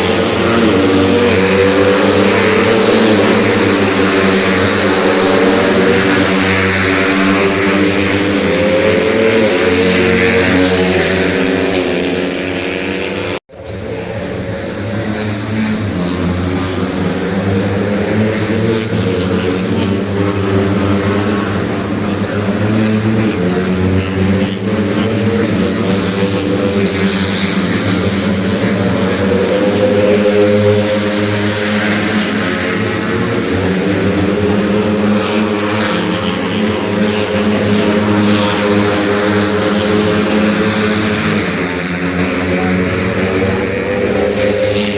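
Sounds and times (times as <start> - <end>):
diffuse engine drone: 0.0 - 44.9
motorcycle engines at high revs: 0.0 - 44.9.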